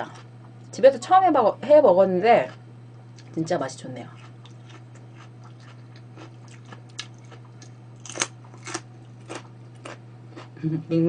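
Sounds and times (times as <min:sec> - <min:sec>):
steady low hum: 0:00.0 - 0:11.0
person chewing food: 0:04.2 - 0:10.6.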